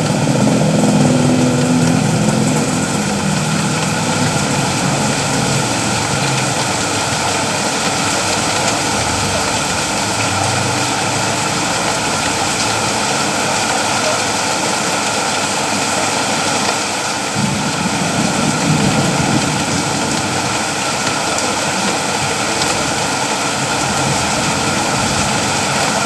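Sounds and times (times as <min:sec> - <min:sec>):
vehicle engine running: 0:00.0 - 0:15.1
steady rain falling: 0:00.0 - 0:26.0.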